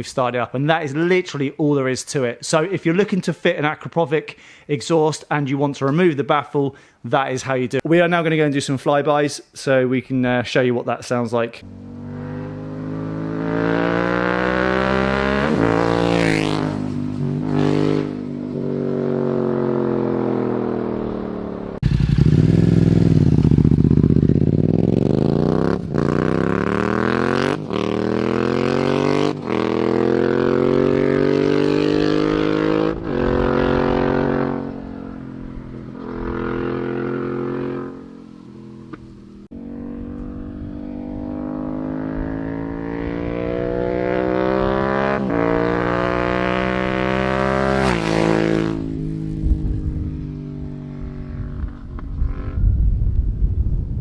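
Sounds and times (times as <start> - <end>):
motorcycle engine revving: 11.6 - 53.0.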